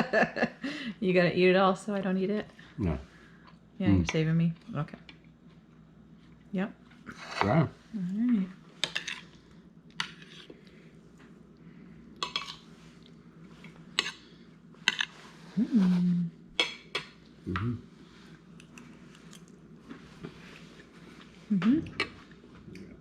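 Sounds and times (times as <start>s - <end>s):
person humming: 15.5s - 16.4s, 17.5s - 17.9s, 21.5s - 22.0s.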